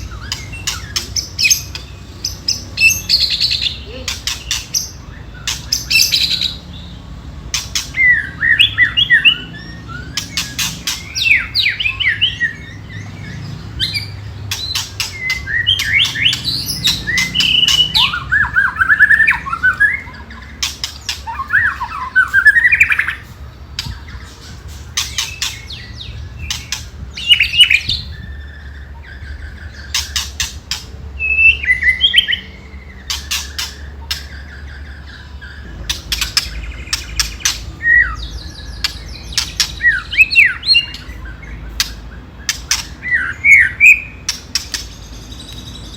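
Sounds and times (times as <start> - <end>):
bird whistling phrases: 14.8 - 23.3.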